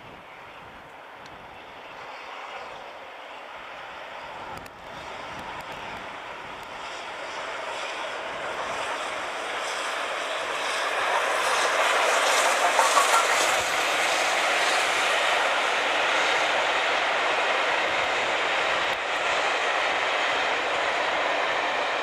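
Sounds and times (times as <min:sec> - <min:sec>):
steam train rushing past: 0:06.8 - 0:22.0.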